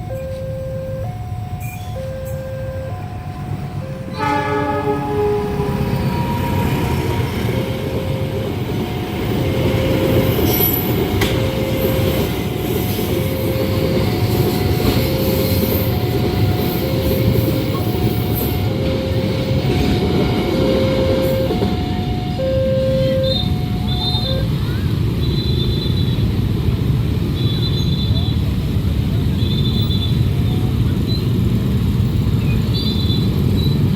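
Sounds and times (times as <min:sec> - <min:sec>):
two-note crossing warning alarm: 0:00.0 - 0:24.7
train wheels rumbling on rails: 0:00.0 - 0:33.9.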